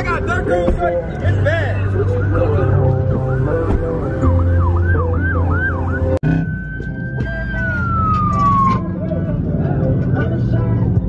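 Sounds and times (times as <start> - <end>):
police siren: 1.8 - 9.0.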